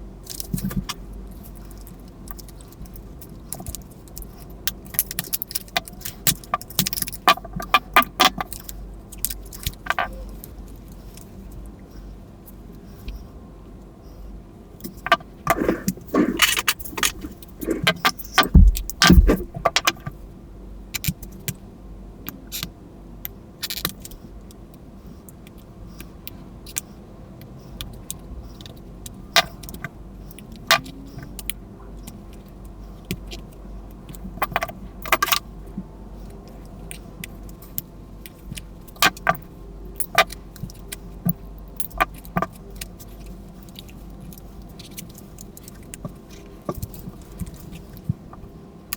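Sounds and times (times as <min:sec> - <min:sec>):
plastic toy clicking and rattling: 0:01.8 - 0:10.2.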